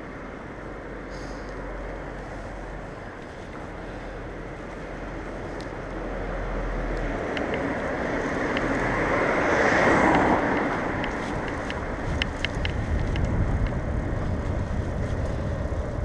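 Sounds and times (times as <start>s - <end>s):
traffic noise: 0.0s - 16.0s
vehicle passing close by: 6.0s - 16.0s
wind noise: 7.0s - 16.0s.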